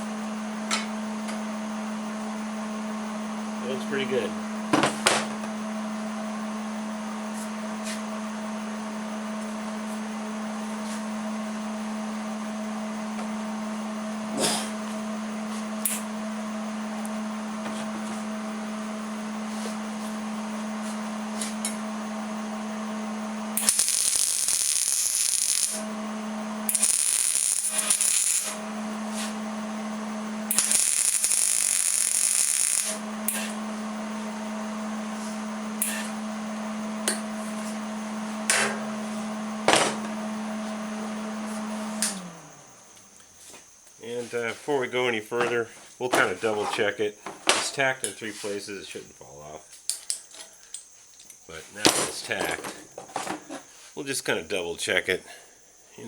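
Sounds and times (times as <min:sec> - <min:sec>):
steady hum: 0:13.7 - 0:45.3
welding arc hissing: 0:23.6 - 0:26.0, 0:26.6 - 0:29.4, 0:30.4 - 0:33.6, 0:35.8 - 0:36.2.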